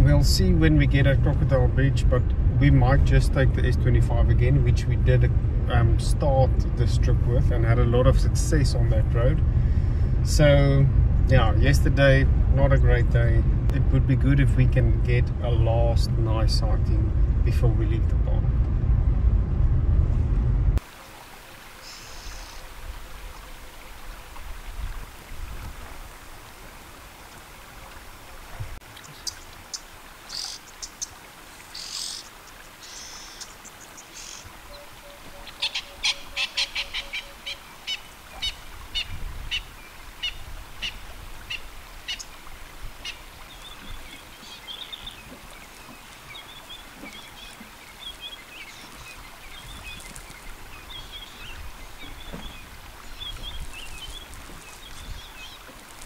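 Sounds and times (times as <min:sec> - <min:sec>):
faint low rumble: 0:00.0 - 0:20.8
wild birds calling: 0:21.6 - 0:24.4, 0:26.0 - 0:56.0
bird trilling song: 0:29.0 - 0:42.4, 0:43.0 - 0:55.7.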